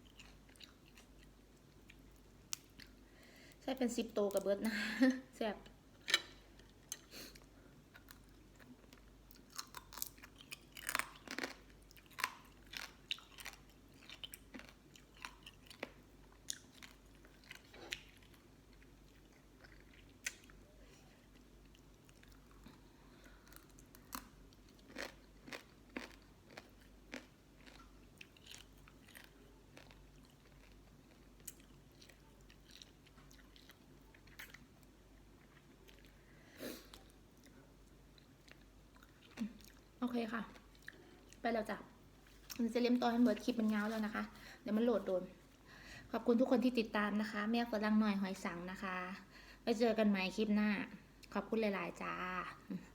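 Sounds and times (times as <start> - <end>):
person chewing crunchy food: 0.0 - 3.0, 6.5 - 36.3, 36.9 - 41.4.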